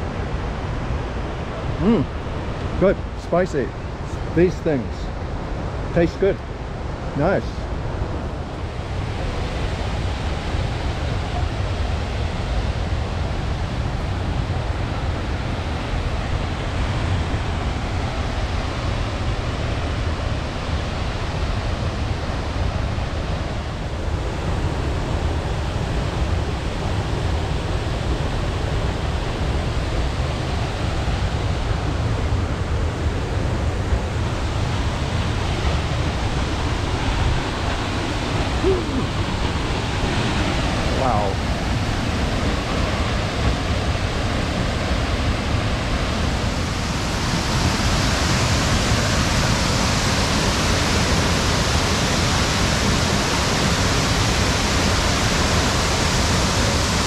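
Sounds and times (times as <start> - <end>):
waterfall rushing: 29.7 - 57.0.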